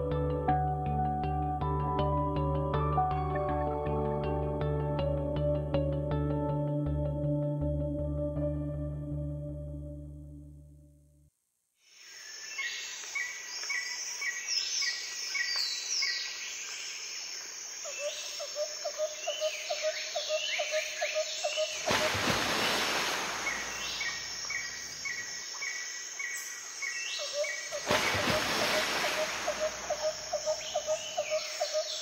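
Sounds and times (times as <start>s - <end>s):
small birds chirping: 22.5s - 32.0s.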